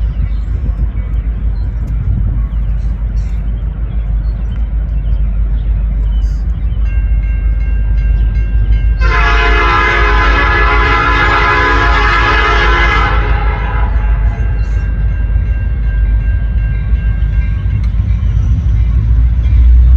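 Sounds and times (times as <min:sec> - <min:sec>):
steady low rumble: 0:00.0 - 0:19.9
locomotive air horn: 0:09.0 - 0:14.6.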